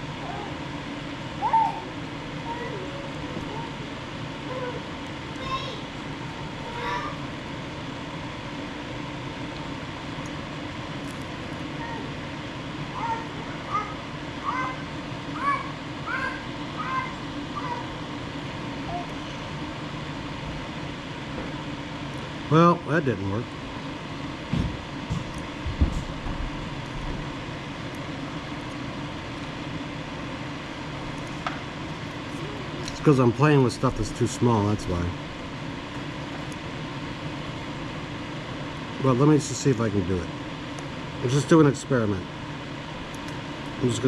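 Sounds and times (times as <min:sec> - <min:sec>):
fan running: 0:00.0 - 0:44.0
low rumbling background noise: 0:00.0 - 0:44.0
animal call: 0:01.4 - 0:02.0.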